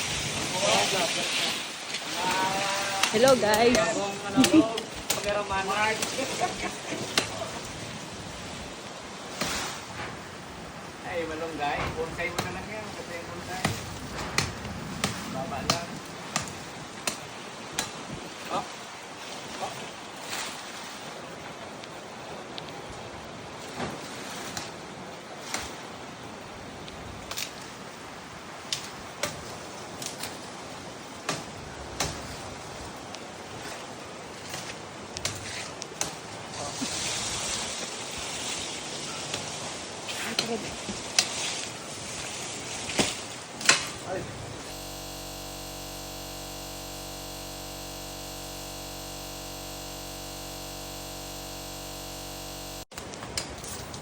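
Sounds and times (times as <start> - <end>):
sharp knocks of branches cut: 13.6 - 18.0
steady hum of held tones: 44.6 - 52.9.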